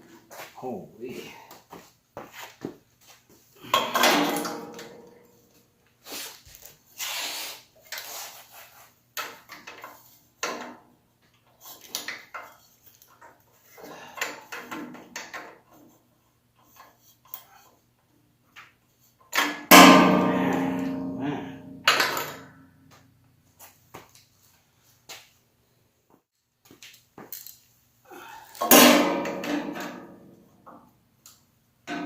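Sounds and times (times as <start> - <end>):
tools knocking and clinking: 3.7 - 5.1, 19.4 - 22.5.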